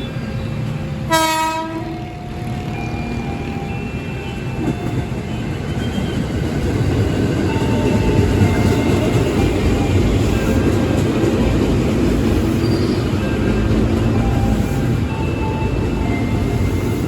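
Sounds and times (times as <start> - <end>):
train wheels rumbling: 0.0 - 17.0
wheels squealing: 12.1 - 17.0.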